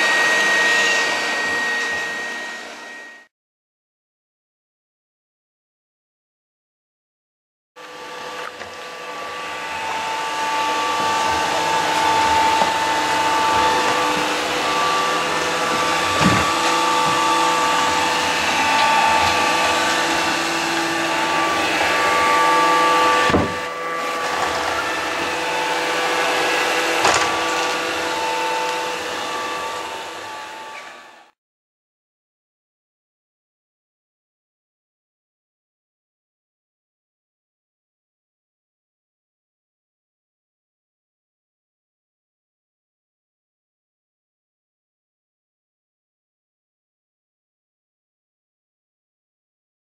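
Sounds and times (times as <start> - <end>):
robot vacuum cleaner whirring: 0.0 - 3.3, 7.8 - 31.4.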